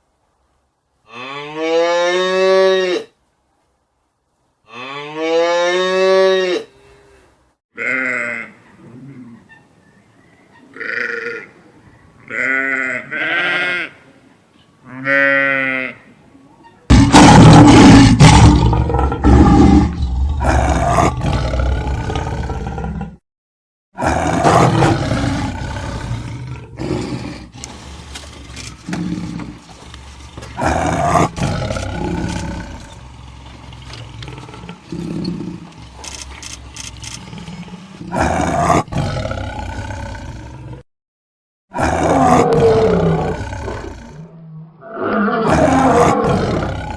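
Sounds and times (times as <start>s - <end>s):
sheep bleating: 7.8s - 8.6s, 12.3s - 14.0s
big cat roaring and growling: 16.9s - 23.2s, 24.0s - 27.7s, 30.6s - 33.1s, 37.2s - 40.8s, 41.7s - 46.9s.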